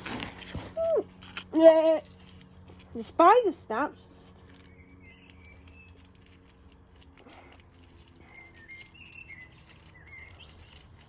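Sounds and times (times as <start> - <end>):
low steady hum: 0.0 - 11.0
faint bird chirps: 8.2 - 11.0.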